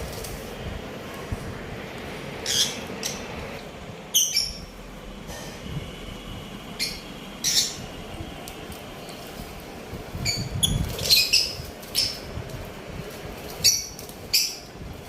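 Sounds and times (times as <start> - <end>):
budgerigars chirping and squawking: 2.4 - 3.3, 4.1 - 4.7, 6.8 - 7.9, 10.2 - 12.3, 13.6 - 14.7.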